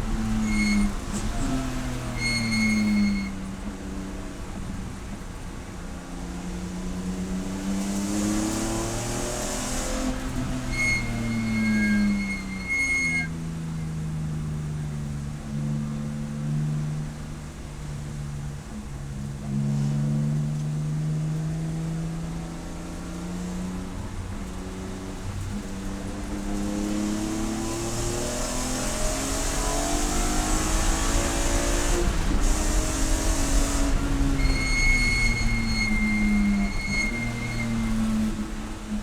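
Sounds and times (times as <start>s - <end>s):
high-pitched squeal: 0.0s - 3.5s, 9.0s - 13.4s, 27.3s - 38.8s
wind and road noise: 0.0s - 39.0s
race car engine revving: 26.2s - 39.0s.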